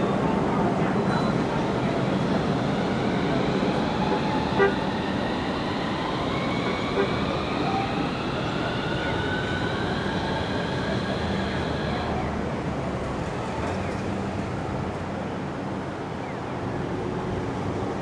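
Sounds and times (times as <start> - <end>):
tram motors whining: 0.0 - 14.0
tram running noise: 0.0 - 18.0.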